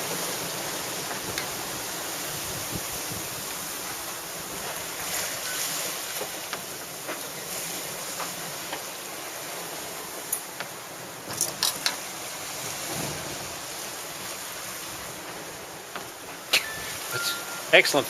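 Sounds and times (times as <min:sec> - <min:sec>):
sea wash: 0:00.0 - 0:18.0
wind rushing: 0:01.5 - 0:03.9.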